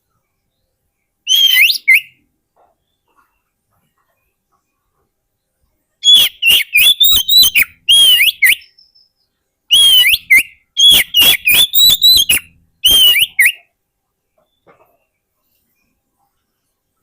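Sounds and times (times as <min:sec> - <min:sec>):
bird singing whistled notes: 0:00.4 - 0:02.2, 0:06.0 - 0:13.7.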